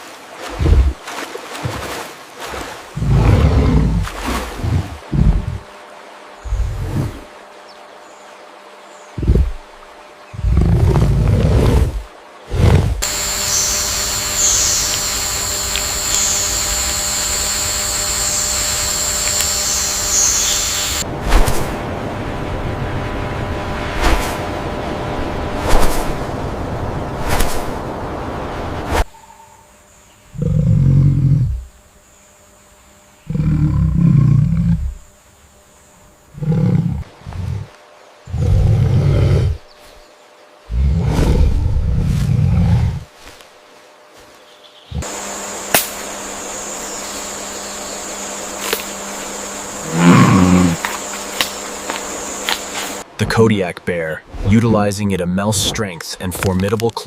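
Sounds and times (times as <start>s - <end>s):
large animal roaring: 3.0s - 5.7s, 10.4s - 13.1s, 30.3s - 31.7s, 33.3s - 35.0s, 36.3s - 39.6s, 40.7s - 43.1s, 49.7s - 50.9s
high-pitched buzzing drone: 13.0s - 25.7s, 44.9s - 53.4s.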